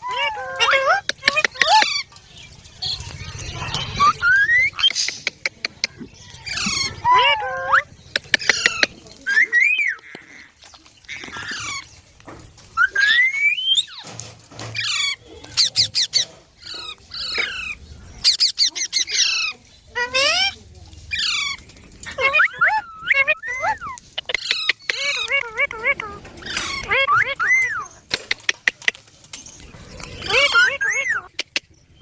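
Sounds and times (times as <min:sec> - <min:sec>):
parakeets squawking and chattering: 0:00.0 - 0:32.0
whistled bird calls: 0:02.7 - 0:05.3, 0:05.9 - 0:10.1, 0:12.7 - 0:14.1, 0:26.4 - 0:28.0.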